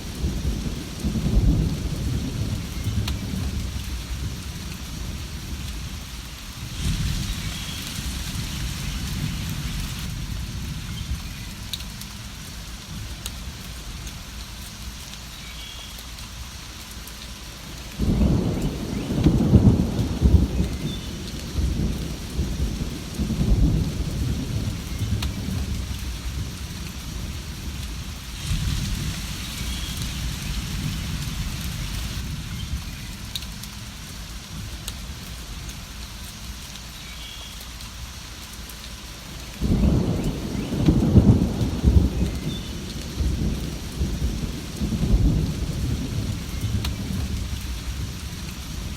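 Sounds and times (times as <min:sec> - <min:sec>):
rolling thunder: 0:00.0 - 0:05.7, 0:06.6 - 0:11.7, 0:18.0 - 0:33.3, 0:39.6 - 0:48.9
steady rain: 0:00.0 - 0:48.9.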